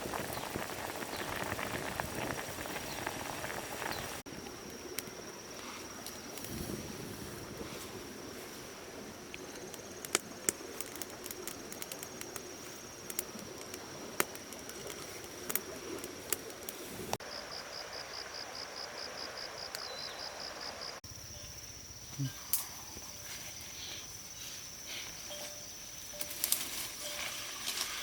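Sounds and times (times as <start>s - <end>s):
insects trilling: 0.0s - 28.0s
insects chirping in pulses: 17.2s - 28.0s.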